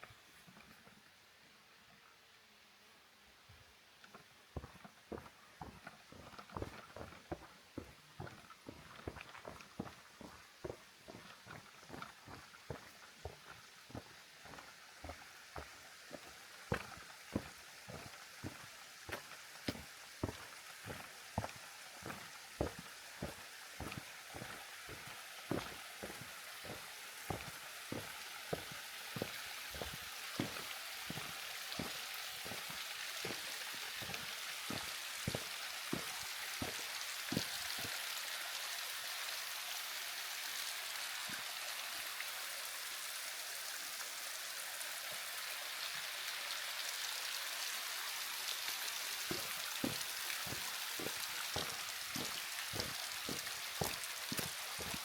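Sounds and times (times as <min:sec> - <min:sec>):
footsteps walking: 0:04.0 - 0:38.0, 0:49.2 - 0:55.0
rushing water: 0:04.1 - 0:55.0.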